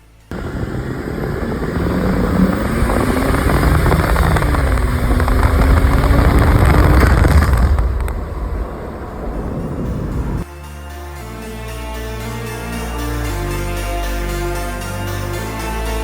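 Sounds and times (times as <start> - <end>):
diesel engine driving: 0.0 - 10.4
road rumble: 0.0 - 10.5.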